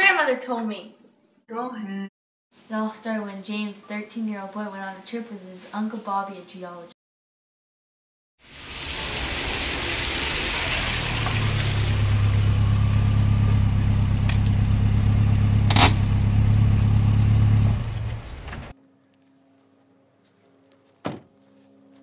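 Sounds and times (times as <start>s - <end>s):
rushing noise: 8.4s - 15.0s
car engine humming: 8.5s - 18.7s
sharp click: 15.7s - 16.1s.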